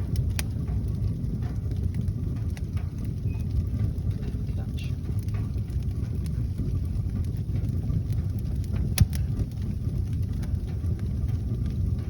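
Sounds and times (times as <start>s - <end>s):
wood fire rumbling and crackling: 0.0s - 12.0s
fire sharp pop: 8.3s - 10.5s.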